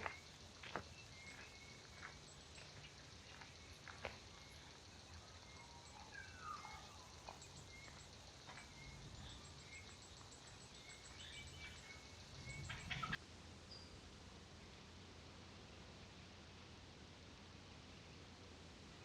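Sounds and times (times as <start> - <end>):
birds chirping: 0.0 - 13.2.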